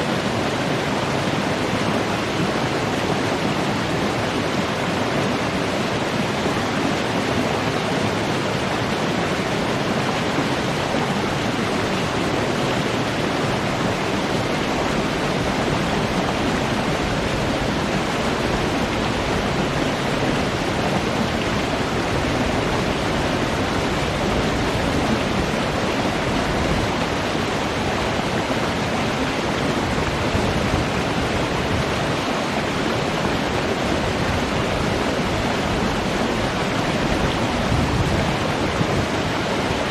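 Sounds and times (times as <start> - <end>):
water flowing: 0.0 - 39.9.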